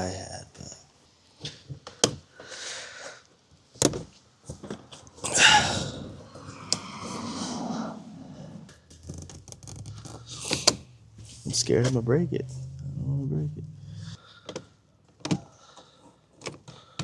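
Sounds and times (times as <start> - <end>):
loud breath: 2.4 - 3.3, 5.3 - 8.7, 13.8 - 17.0.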